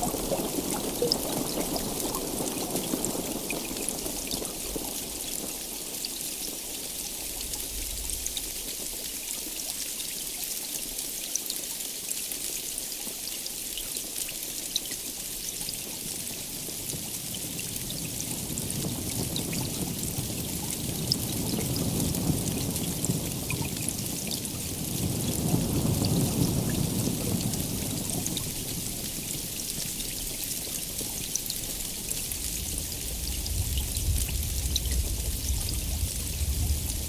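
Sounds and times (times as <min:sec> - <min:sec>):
heavy rain: 0:00.0 - 0:11.2, 0:13.1 - 0:37.0
thunder rumble: 0:17.4 - 0:37.0.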